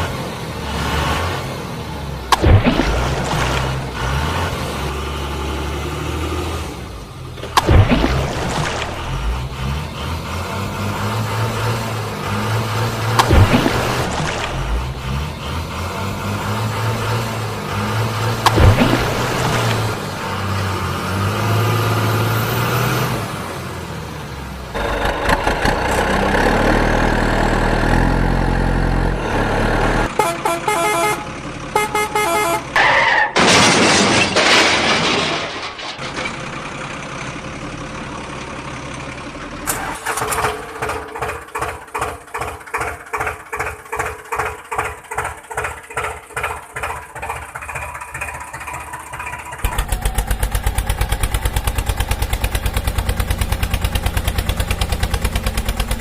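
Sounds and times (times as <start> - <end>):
truck engine running: 0.0 - 33.5, 35.8 - 56.0
truck horn honks: 30.0 - 33.3.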